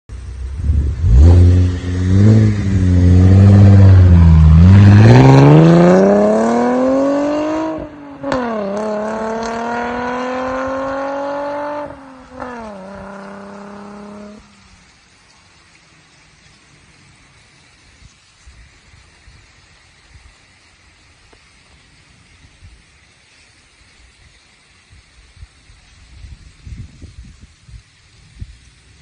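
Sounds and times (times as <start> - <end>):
car engine accelerating hard: 0.3 - 14.6.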